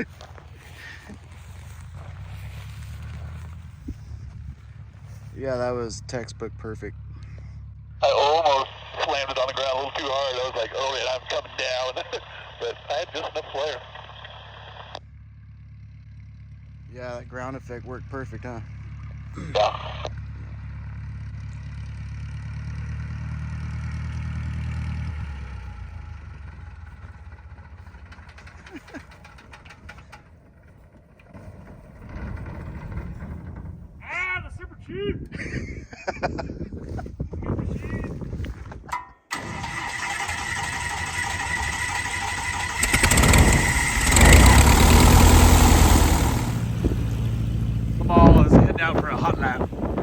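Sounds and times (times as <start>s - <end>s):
aircraft piston engine running: 39.3s - 50.0s.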